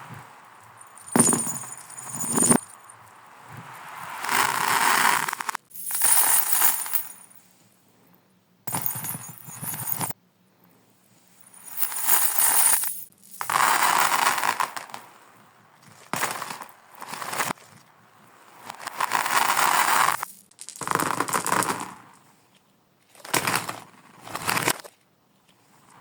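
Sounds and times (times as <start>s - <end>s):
reversed marbles rattling on marble run: 0.9s - 2.8s, 4.2s - 7.2s.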